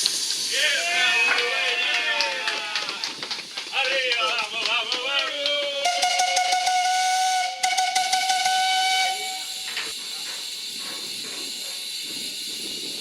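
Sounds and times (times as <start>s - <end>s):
steam hissing: 0.0s - 13.0s
steam whistle blowing: 5.8s - 9.9s.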